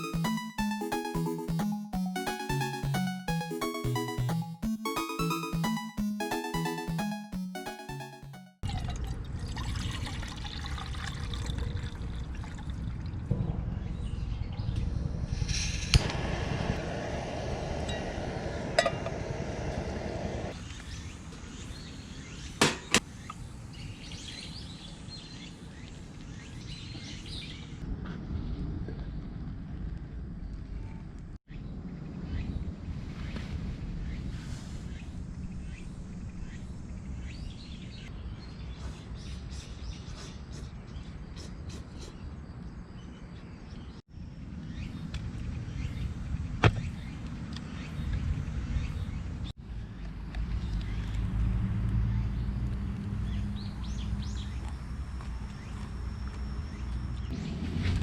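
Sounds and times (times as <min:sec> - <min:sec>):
wind rumble on microphone: 0:12.8 - 0:20.6.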